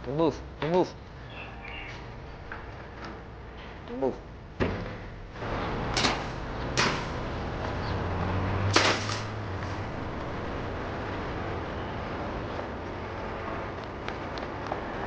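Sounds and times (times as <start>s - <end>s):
sharp knocks: 5.8s - 7.2s.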